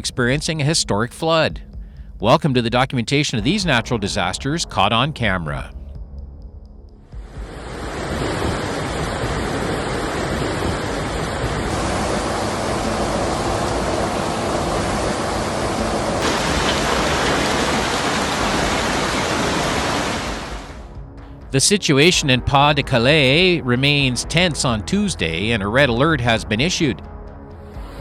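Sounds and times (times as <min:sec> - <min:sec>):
heavy rain: 0:07.4 - 0:20.9
running water: 0:07.4 - 0:20.9.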